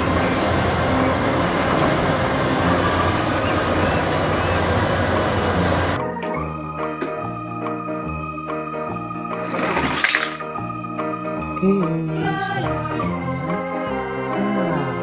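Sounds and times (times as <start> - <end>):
toy excavator whirring: 9.3 - 10.6.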